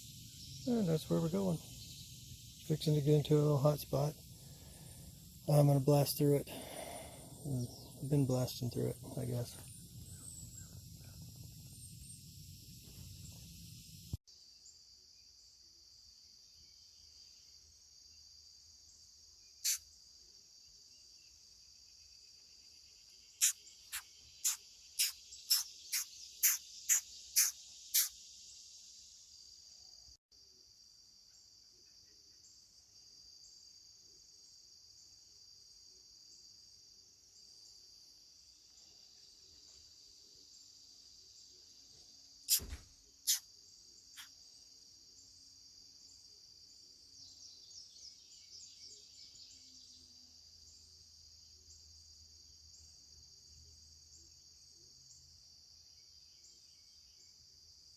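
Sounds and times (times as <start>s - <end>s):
insect chorus: 0.0s - 57.9s
downward-sweeping chirps: 23.4s - 28.2s.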